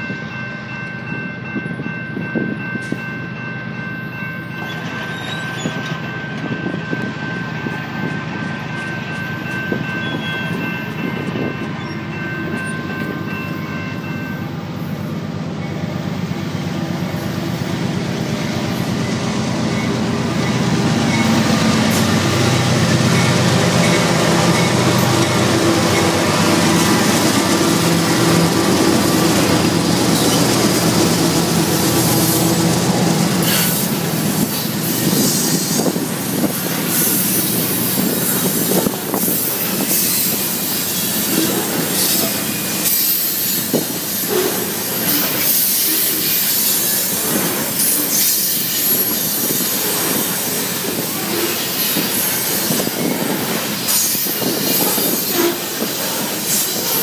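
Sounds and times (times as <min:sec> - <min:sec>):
diesel locomotive engine hum: 0:00.0 - 0:57.0
wheel squeal: 0:04.6 - 0:06.0.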